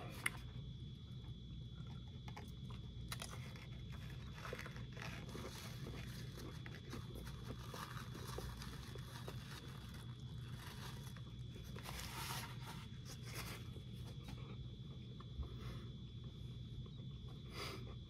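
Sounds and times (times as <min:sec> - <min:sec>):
man chewing: 0:01.8 - 0:15.0.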